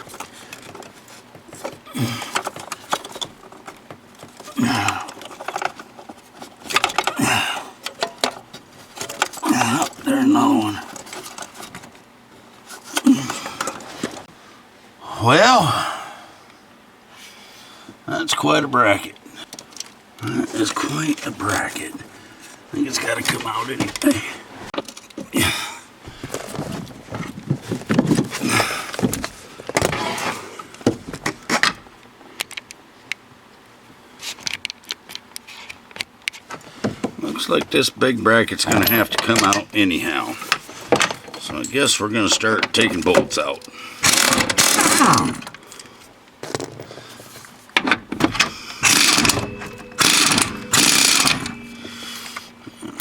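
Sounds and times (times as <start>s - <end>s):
metal tools clinking and rattling: 0.0s - 11.9s, 38.6s - 45.6s, 48.3s - 53.0s
socket ratchet clicking: 48.8s - 49.4s, 50.0s - 51.4s.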